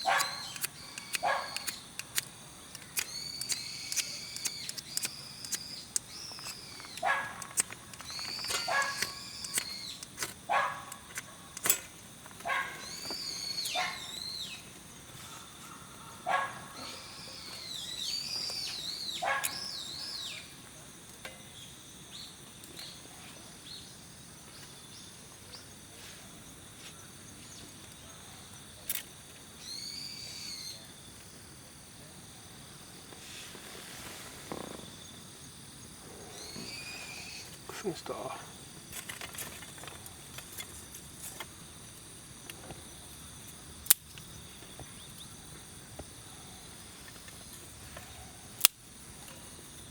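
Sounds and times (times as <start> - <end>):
birds whistling calls: 0.0 - 10.7, 12.4 - 14.7, 15.3 - 20.6, 29.6 - 30.9, 36.1 - 38.3
sharp clicks: 0.0 - 13.8, 48.6 - 48.8.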